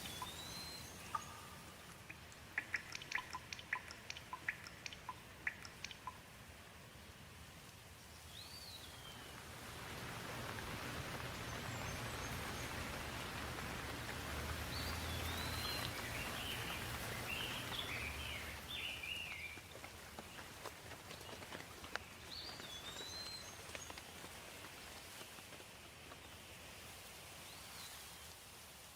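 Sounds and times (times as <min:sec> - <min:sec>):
bird chirping: 0:00.0 - 0:06.2, 0:10.5 - 0:20.5, 0:21.1 - 0:24.0
water dripping: 0:00.0 - 0:06.8, 0:07.6 - 0:26.2
steady rain: 0:00.0 - 0:28.9.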